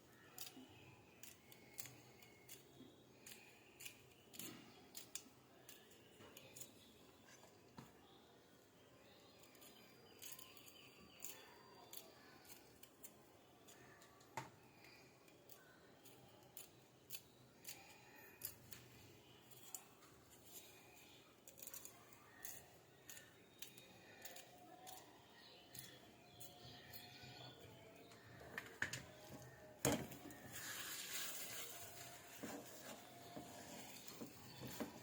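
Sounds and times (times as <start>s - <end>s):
small clicks and snips: 0.3s - 6.9s, 21.4s - 27.1s.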